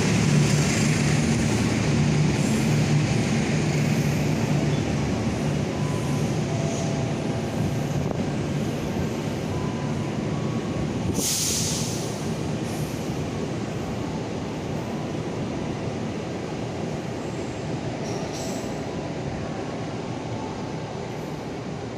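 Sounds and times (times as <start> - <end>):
train wheels rumbling on rails: 0.0 - 21.9
burst of hiss: 11.1 - 13.0.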